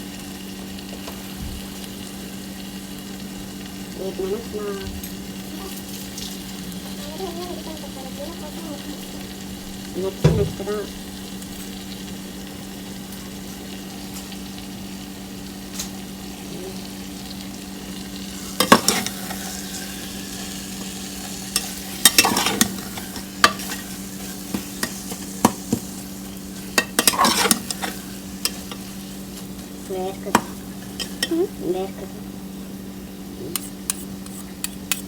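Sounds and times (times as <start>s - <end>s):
food sizzling in a pan: 0.0s - 35.0s
spoon scraping a pan: 18.3s - 32.2s, 33.5s - 35.0s.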